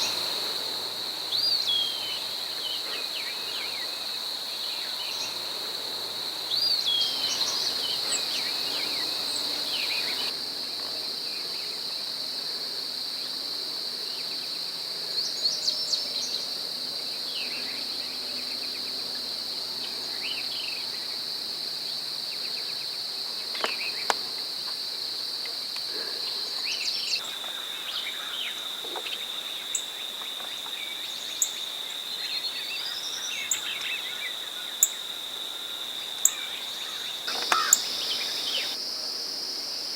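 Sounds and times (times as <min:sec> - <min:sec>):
high-pitched insect chorus: 0:00.0 - 0:39.9
songbirds chirping: 0:06.5 - 0:10.3, 0:26.2 - 0:35.2, 0:35.9 - 0:38.8.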